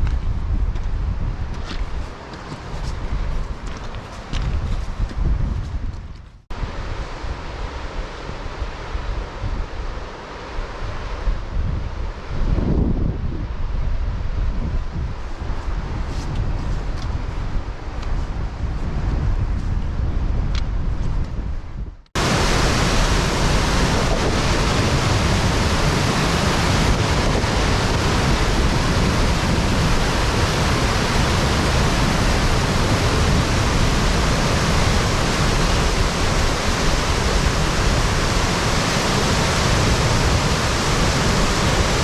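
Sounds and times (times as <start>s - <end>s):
wind rumble on microphone: 0.0s - 42.0s
mountain stream rushing: 22.2s - 42.0s.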